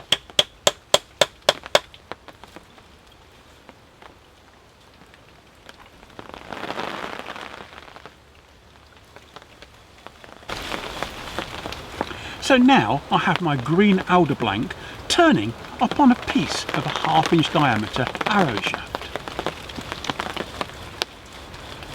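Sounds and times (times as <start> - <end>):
sharp wooden knocks: 0.0 - 1.9.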